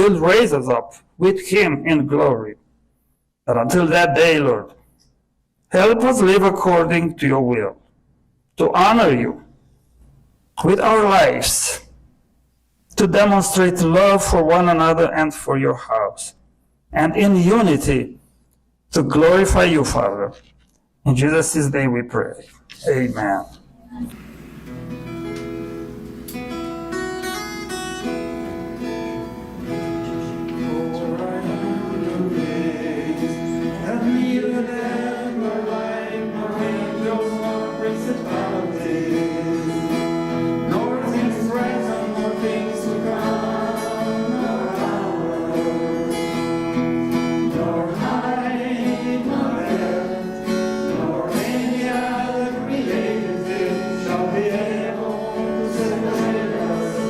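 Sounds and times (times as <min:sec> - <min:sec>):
voices singing: 0:23.9 - 0:57.0
acoustic guitar playing: 0:24.0 - 0:57.0.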